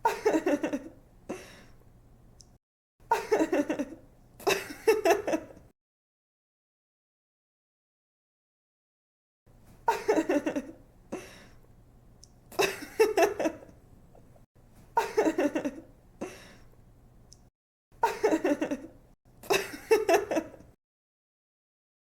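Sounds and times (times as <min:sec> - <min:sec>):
young woman laughing: 0:00.0 - 0:01.0, 0:03.1 - 0:05.6, 0:09.9 - 0:10.8, 0:12.6 - 0:13.7, 0:15.0 - 0:15.9, 0:18.0 - 0:20.7.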